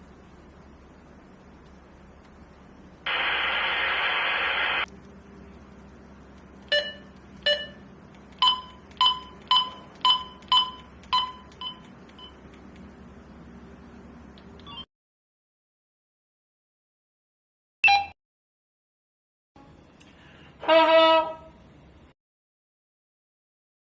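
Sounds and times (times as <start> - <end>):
walkie-talkie radio static: 3.1 - 4.9
short electronic beeps: 6.7 - 7.8, 8.4 - 12.4.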